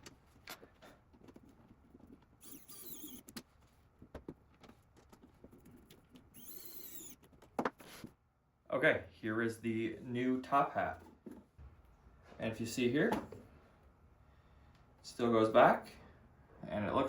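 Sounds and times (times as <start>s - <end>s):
brief high squeaks: 2.4s - 3.3s, 6.3s - 7.2s
screwdriver driving small screws: 2.4s - 3.4s, 6.2s - 7.3s.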